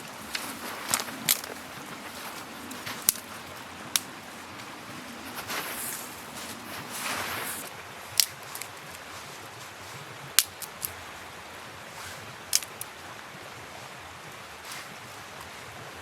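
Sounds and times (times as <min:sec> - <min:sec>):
campfire crackling: 0:00.0 - 0:11.0, 0:12.0 - 0:12.9
steady background hiss: 0:00.0 - 0:16.0.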